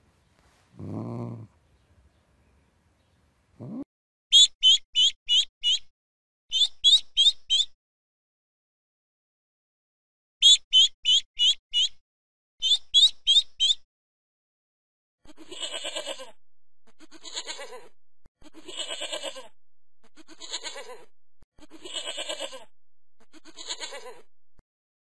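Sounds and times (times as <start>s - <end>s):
goat bleating: 15.3s - 24.2s.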